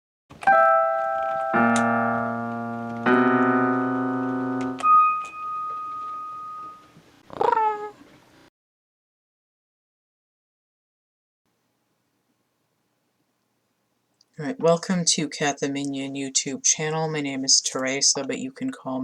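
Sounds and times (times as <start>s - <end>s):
keyboard jingle: 0.4s - 6.9s
cat meow: 7.3s - 8.0s.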